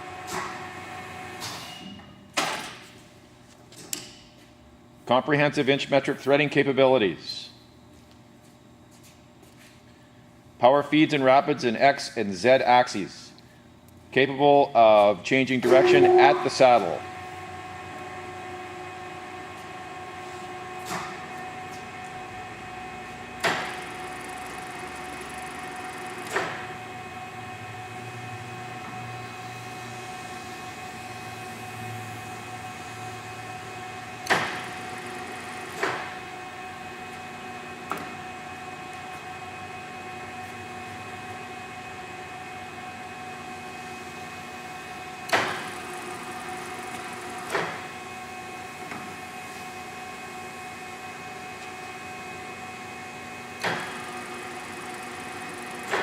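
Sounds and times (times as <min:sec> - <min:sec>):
lathe motor humming: 0:23.6 - 0:28.0, 0:34.6 - 0:35.8, 0:45.6 - 0:47.5, 0:53.8 - 0:56.0.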